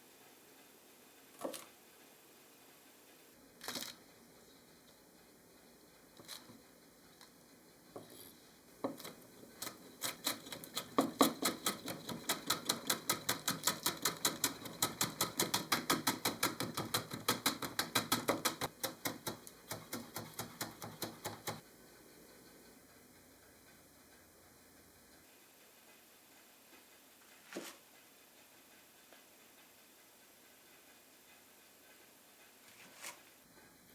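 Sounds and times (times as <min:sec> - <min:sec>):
knife chopping on cutting board: 0:14.3 - 0:21.6.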